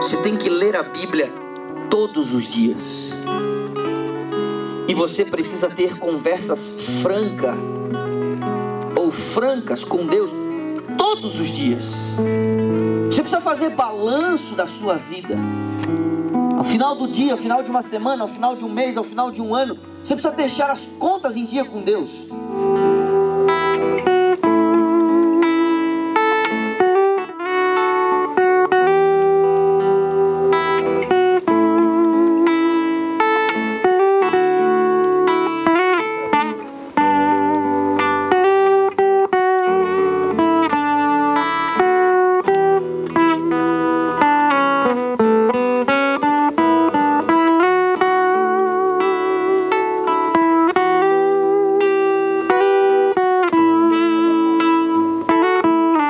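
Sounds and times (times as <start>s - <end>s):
guitar playing plucked melody: 0.0s - 56.0s.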